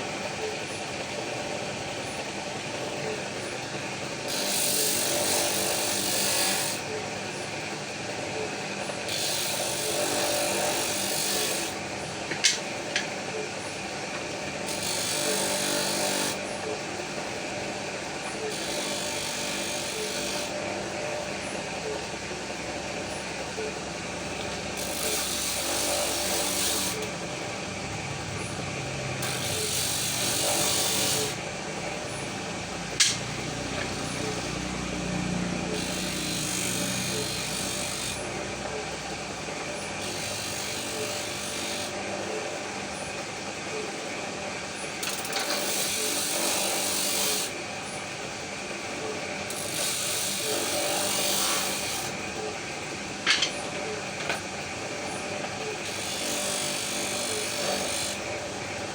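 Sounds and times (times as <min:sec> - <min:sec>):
sharp click: 0:33.0 - 0:33.2.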